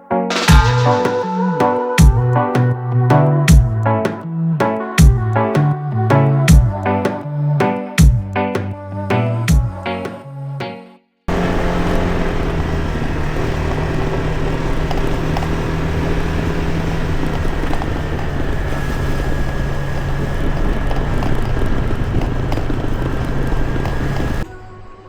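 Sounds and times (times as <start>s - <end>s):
background music: 0.0s - 11.1s
motor scooter engine hum: 0.3s - 9.7s, 11.3s - 24.6s
road and wind noise: 11.3s - 24.5s.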